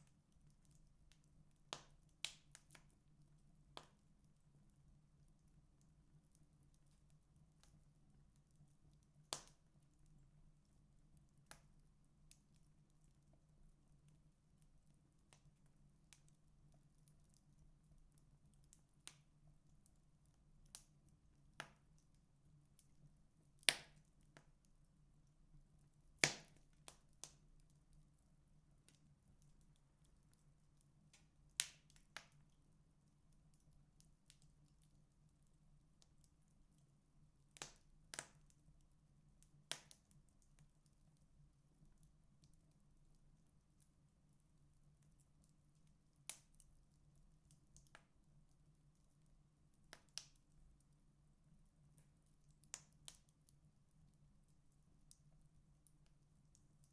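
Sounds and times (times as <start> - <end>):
firewood crackling and popping: 0.0 - 43.1, 44.9 - 48.7, 49.7 - 50.9, 51.8 - 53.6
firewood crackling: 22.8 - 32.6, 37.5 - 38.6, 49.9 - 50.6.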